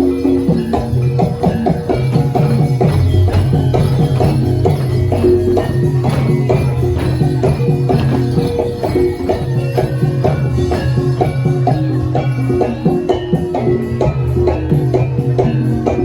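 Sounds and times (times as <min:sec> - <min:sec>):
gamelan percussion: 0:00.0 - 0:16.0.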